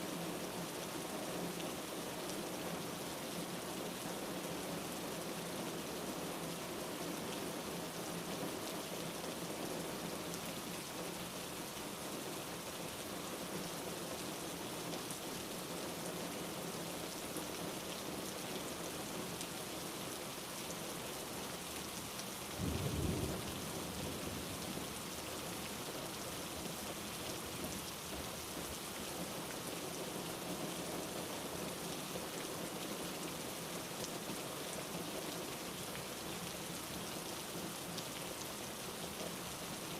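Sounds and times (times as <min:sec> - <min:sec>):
steady rain falling: 0:00.0 - 0:39.9
low rumble of thunder: 0:22.6 - 0:25.0.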